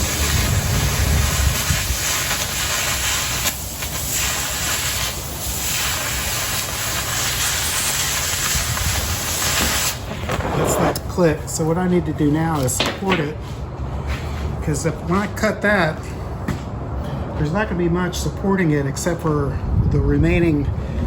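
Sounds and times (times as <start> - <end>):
cutting torch hissing: 0.0 - 11.0.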